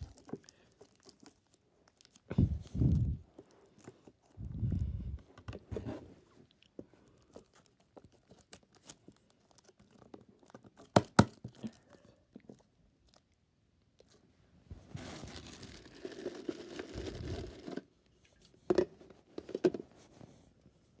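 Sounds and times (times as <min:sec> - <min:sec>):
snack wrappers rustling and crinkling: 0:00.0 - 0:02.4, 0:06.4 - 0:14.3, 0:14.9 - 0:17.9.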